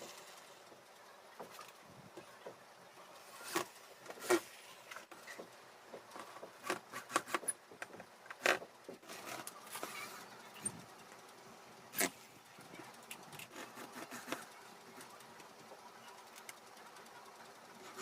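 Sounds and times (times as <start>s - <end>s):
faint steady hum: 0.0s - 18.0s
tool clicks taps and scrapes: 3.4s - 11.1s, 13.0s - 15.5s.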